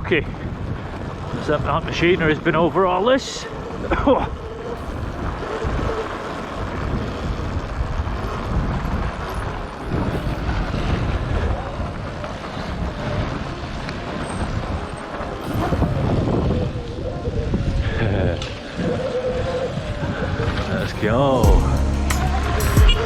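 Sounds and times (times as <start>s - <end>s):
wind buffeting microphone: 0.0s - 21.6s
dirt bike rattling over rocky ground: 5.2s - 16.6s.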